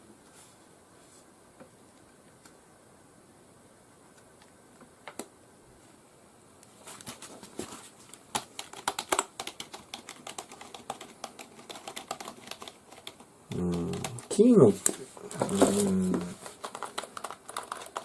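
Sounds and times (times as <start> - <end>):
keyboard typing clatter: 8.2 - 14.4, 15.4 - 18.0.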